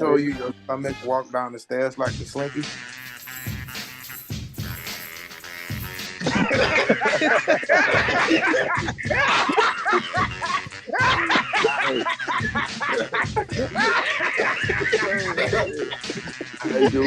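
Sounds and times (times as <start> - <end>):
background music with steady beat: 0.0 - 1.2, 2.0 - 17.0
people laughing loudly: 6.1 - 17.0.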